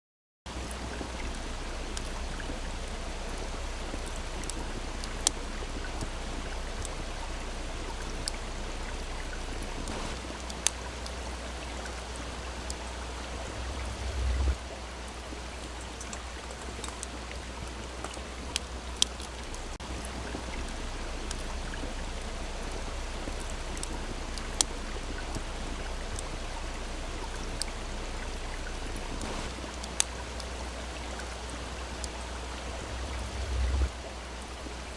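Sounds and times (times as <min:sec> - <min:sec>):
low rumble: 0:00.5 - 0:10.2, 0:12.6 - 0:15.5, 0:19.4 - 0:29.8, 0:31.6 - 0:34.1
stream rushing: 0:00.5 - 0:34.9
campfire crackling and popping: 0:00.6 - 0:34.9.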